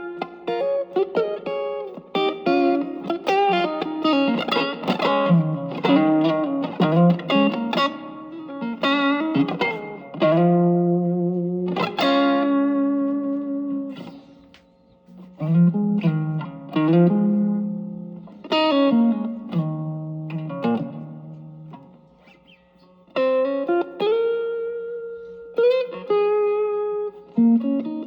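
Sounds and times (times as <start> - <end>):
overdriven electric guitar: 0.0 - 28.0.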